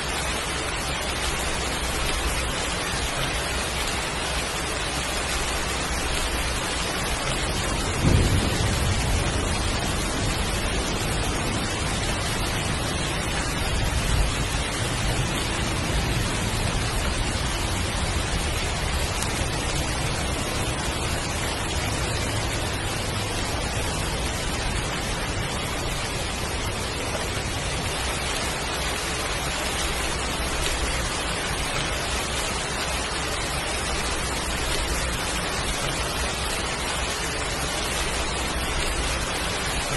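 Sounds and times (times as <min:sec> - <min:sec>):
heavy rain: 0:00.0 - 0:39.9
low thunder rumble: 0:05.9 - 0:36.8.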